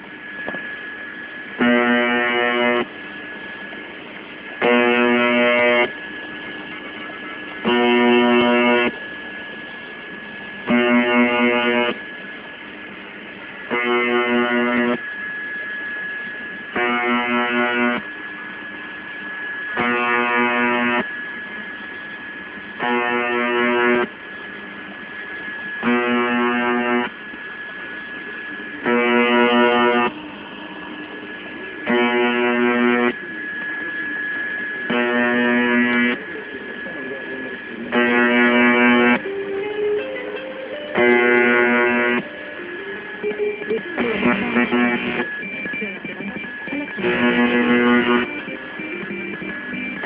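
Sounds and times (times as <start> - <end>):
harsh radio buzz: 0.0 - 50.0
radio static: 0.0 - 50.0
steady high whistle: 14.2 - 39.5.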